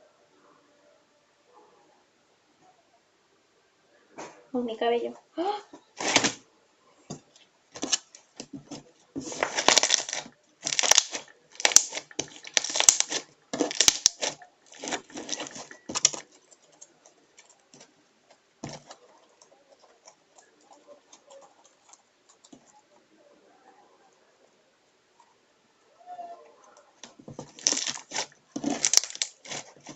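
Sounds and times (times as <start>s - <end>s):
slime squelching by hand: 6.0s - 6.4s, 7.7s - 17.8s, 27.0s - 29.9s.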